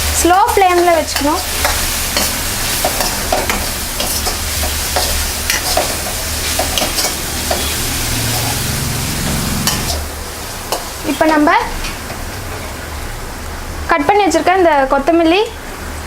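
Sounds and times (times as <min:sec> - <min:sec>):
food sizzling in oil: 0:00.0 - 0:14.4
spoon scraping a pan: 0:00.5 - 0:08.8, 0:09.5 - 0:10.1.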